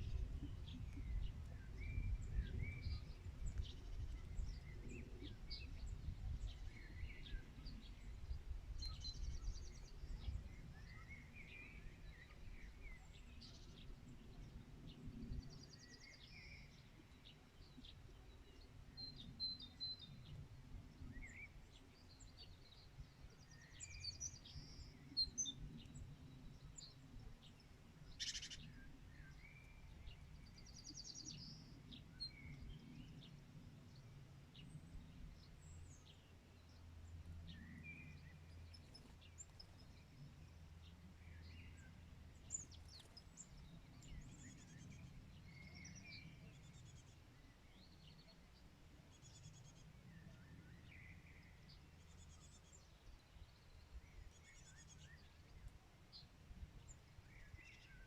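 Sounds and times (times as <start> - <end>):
birds chirping and trilling: 21.0 - 58.0.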